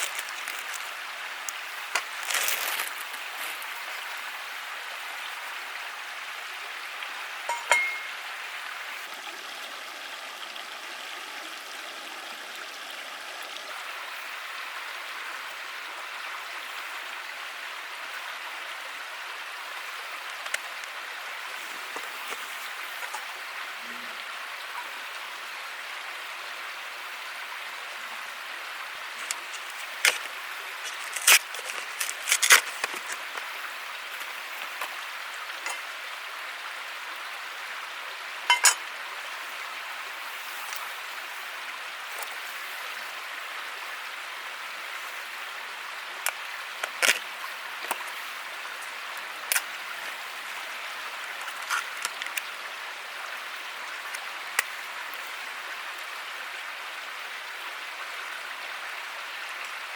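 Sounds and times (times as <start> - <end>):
running water rushing: 0.0 - 59.9
sharp clinks: 7.5 - 8.2.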